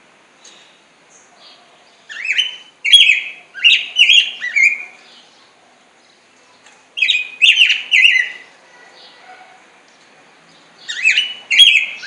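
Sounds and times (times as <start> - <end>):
bird singing warbled notes: 2.1 - 5.3, 7.0 - 8.5, 10.8 - 12.0.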